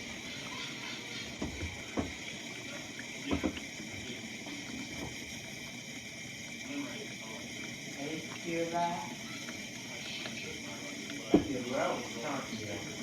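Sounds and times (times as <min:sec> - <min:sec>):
dishwasher water spraying: 0:00.0 - 0:05.3, 0:08.0 - 0:13.0
dishwasher knocks: 0:01.4 - 0:02.2.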